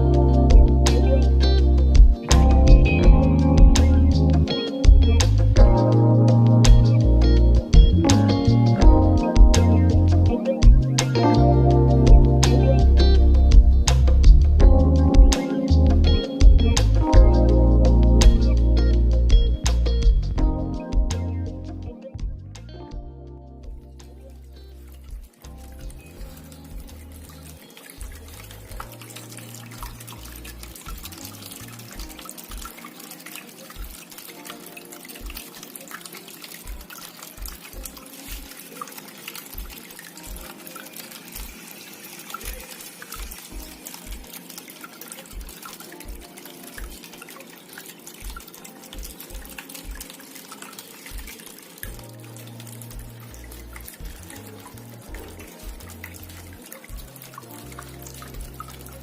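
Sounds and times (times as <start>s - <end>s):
background music bass notes: 0.0s - 32.7s, 51.2s - 59.0s
fountain water trickling: 0.0s - 59.0s
water dripping: 0.0s - 59.0s.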